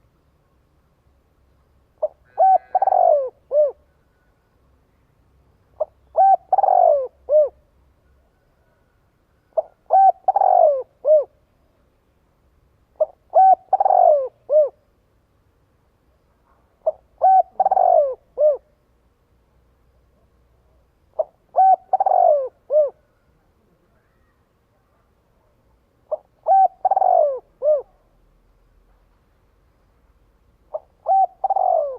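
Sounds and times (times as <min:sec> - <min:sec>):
dove cooing: 0:02.0 - 0:03.9, 0:05.8 - 0:07.6, 0:09.5 - 0:11.4, 0:13.0 - 0:14.8, 0:16.8 - 0:18.8, 0:21.1 - 0:23.2, 0:26.0 - 0:28.1, 0:30.7 - 0:31.9.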